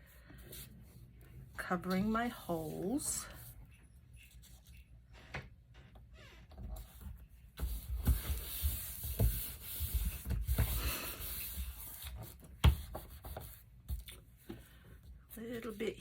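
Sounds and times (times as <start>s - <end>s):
paper rubbed by hand: 7.7s - 12.4s.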